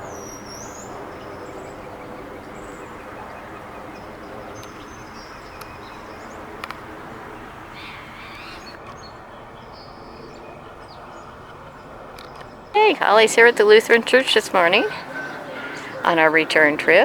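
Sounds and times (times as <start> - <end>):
outdoor background hum: 0.0 - 17.0
small birds chirping: 0.0 - 17.0
sharp clicks: 6.6 - 6.9.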